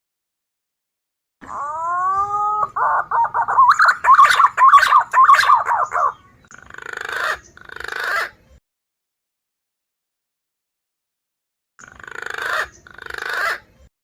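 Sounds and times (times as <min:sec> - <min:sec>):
pigeon warbling whistled notes: 0:01.5 - 0:08.3.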